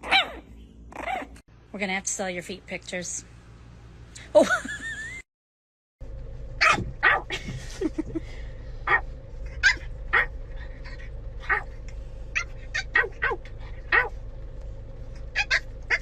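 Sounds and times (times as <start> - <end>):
dog barking: 0.0 - 1.4, 6.6 - 7.3, 8.8 - 9.0, 9.6 - 10.4, 11.4 - 11.7, 12.3 - 14.2, 15.4 - 16.0.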